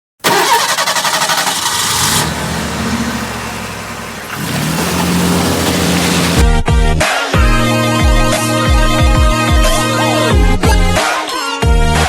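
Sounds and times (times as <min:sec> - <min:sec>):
car engine accelerating: 0:00.3 - 0:06.5.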